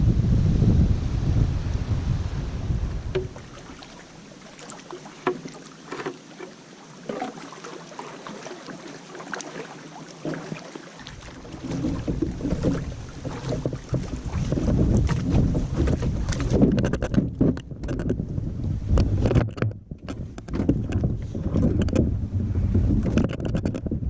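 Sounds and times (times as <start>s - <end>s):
wind buffeting microphone: 0.0s - 3.9s, 11.2s - 24.0s
paddle knocking on hull: 3.0s - 24.0s
water splashing and dripping: 3.1s - 17.3s.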